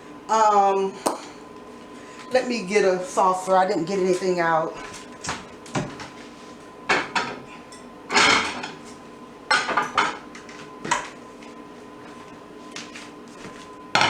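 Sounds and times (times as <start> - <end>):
dishes and cutlery clinking: 6.9 - 8.8.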